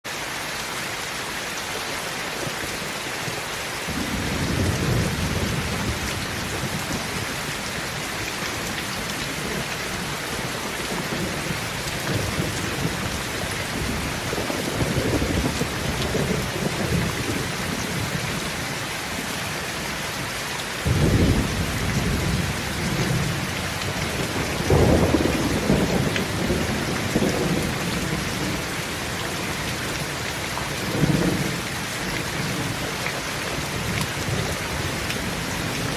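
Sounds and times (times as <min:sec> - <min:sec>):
steady rain falling: 0:00.0 - 0:35.9.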